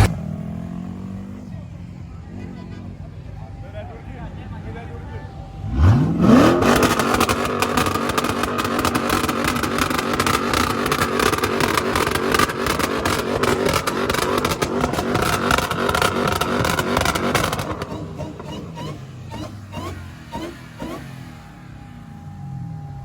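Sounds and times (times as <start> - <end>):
car engine revving: 0.0 - 2.6, 4.6 - 23.0
rapid exhaust crackle: 5.6 - 21.0.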